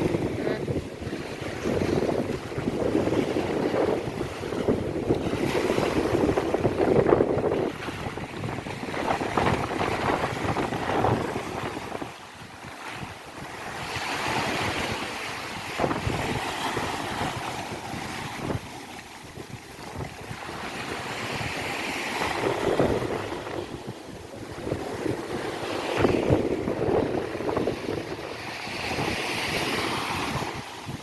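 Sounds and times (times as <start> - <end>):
ocean waves breaking: 0.0 - 31.0
wind buffeting microphone: 0.0 - 31.0.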